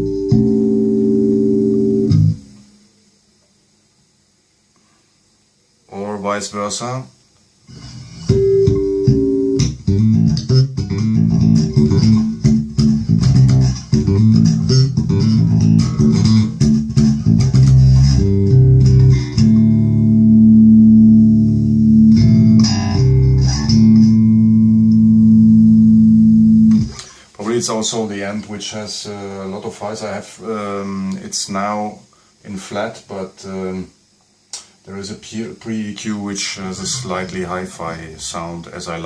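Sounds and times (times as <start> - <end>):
electric bass plucked notes: 0.0 - 2.6, 8.3 - 27.0.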